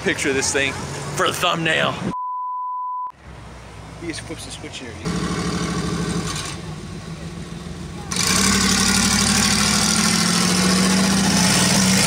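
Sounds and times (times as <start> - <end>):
monster truck engine running: 5.1 - 12.0.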